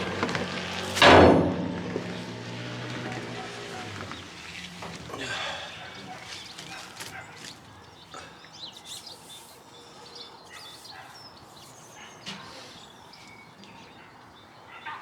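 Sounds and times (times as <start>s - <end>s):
small birds chirping: 3.0s - 15.0s.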